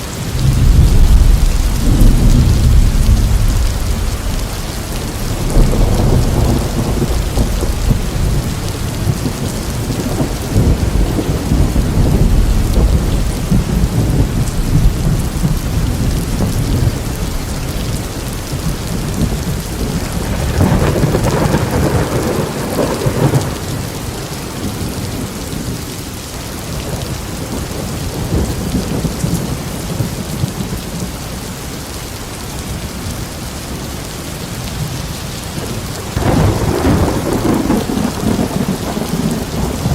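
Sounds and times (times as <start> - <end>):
heavy rain: 0.0 - 39.9
rolling thunder: 0.2 - 26.0, 35.5 - 39.9.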